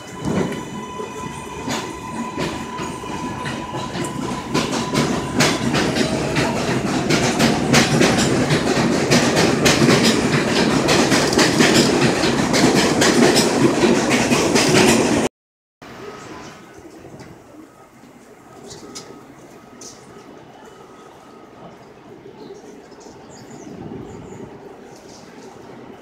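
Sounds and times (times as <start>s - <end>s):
train wheels clicking over rail joints: 1.6s - 15.3s.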